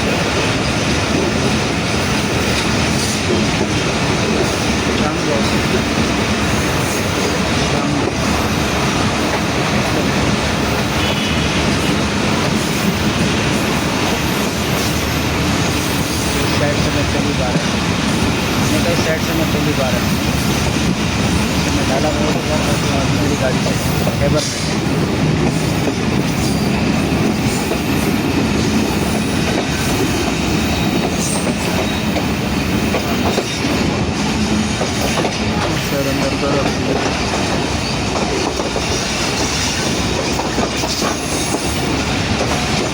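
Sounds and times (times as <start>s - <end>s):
train wheels on track: 0.0s - 42.9s.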